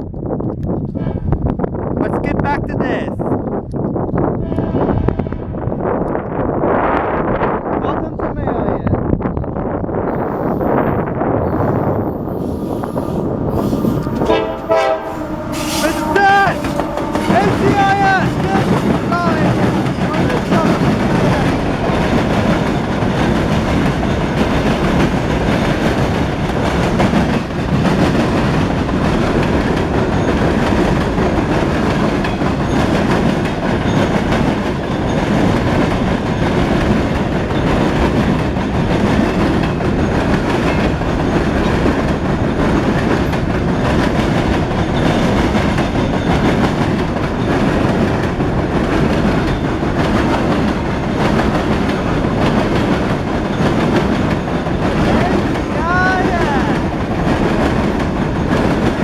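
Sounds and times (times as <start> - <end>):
freight train rumbling past: 0.3 - 59.0.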